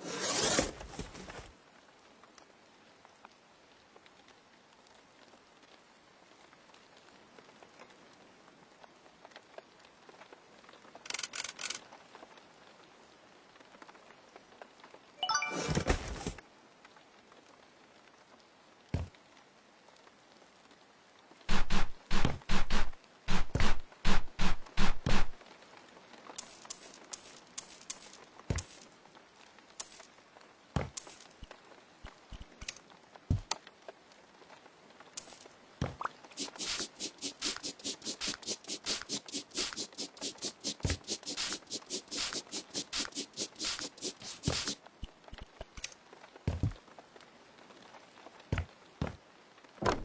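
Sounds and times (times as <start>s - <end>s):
creak or scrape: 0.0s - 1.5s, 35.2s - 46.8s
light clinks and taps: 26.4s - 28.9s, 29.8s - 30.1s, 30.8s - 32.8s, 35.2s - 36.1s.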